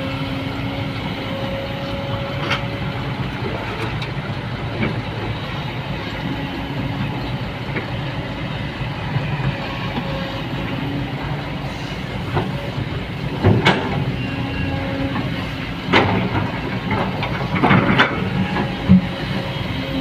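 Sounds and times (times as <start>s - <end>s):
heavy machine rumbling: 0.0s - 20.0s.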